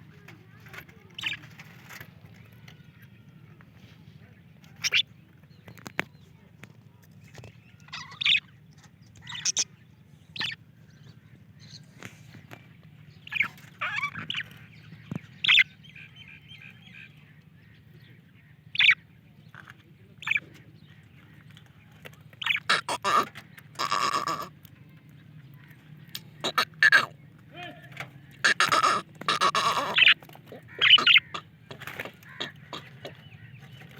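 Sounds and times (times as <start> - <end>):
parrots chirping and squawking: 0.2 - 3.0, 4.7 - 5.1, 7.7 - 9.7, 10.4 - 10.6, 13.2 - 17.0, 18.7 - 20.6, 22.2 - 33.9.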